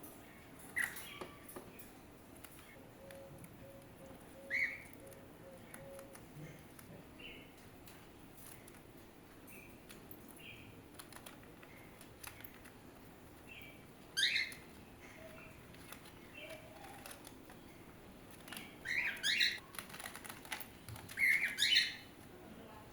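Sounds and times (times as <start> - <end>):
birds chirping softly: 0.0 - 22.9
loud squawky bird calls: 14.2 - 15.5, 18.8 - 19.6, 21.1 - 22.1.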